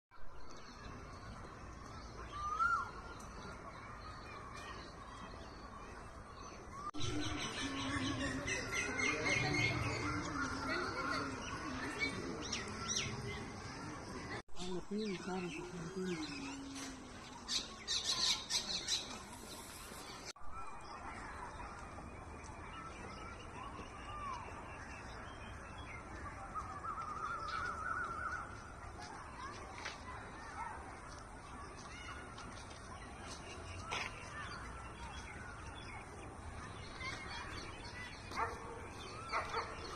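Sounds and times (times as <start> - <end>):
outdoor background noise: 0.1 - 39.9
birds calling: 1.2 - 21.3.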